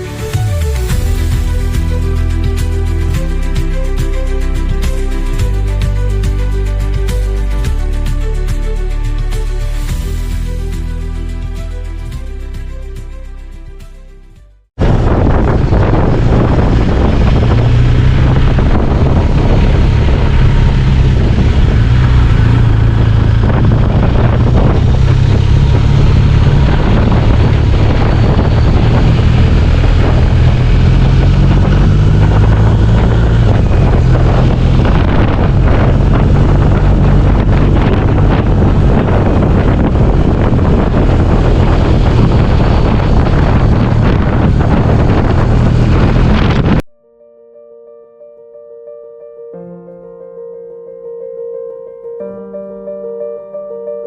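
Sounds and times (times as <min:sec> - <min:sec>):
motorcycle engine running: 0:00.0 - 0:12.6, 0:14.8 - 0:46.8
wind noise on microphone: 0:00.0 - 0:13.8, 0:14.8 - 0:46.9.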